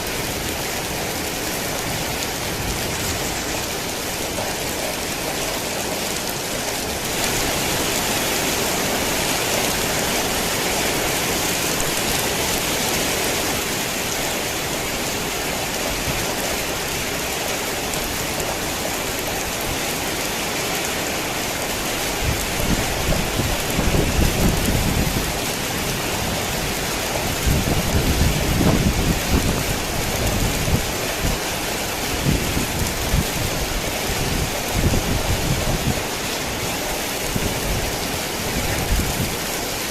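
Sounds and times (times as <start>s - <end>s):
heavy rain: 0.0s - 39.9s
thunder rumbling: 21.8s - 39.8s.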